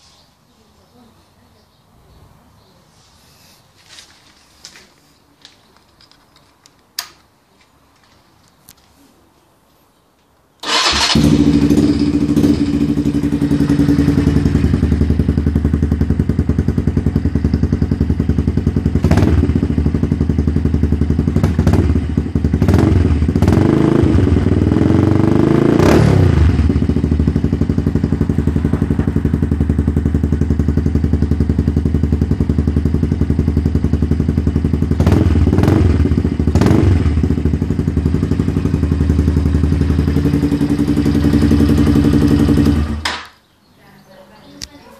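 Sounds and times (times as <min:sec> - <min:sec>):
motorcycle engine idling and revving: 0:10.6 - 0:43.1.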